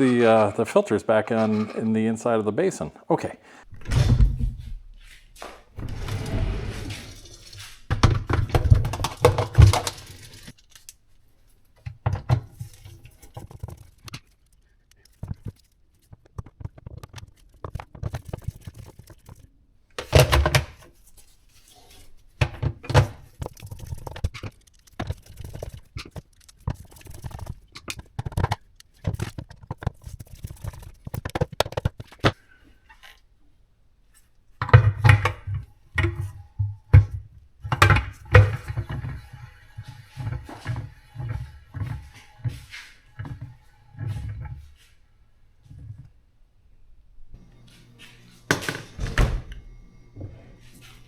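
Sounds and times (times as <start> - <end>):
dishwasher parts thunking and scraping: 5.8 - 10.5, 34.7 - 44.8, 47.4 - 51.0.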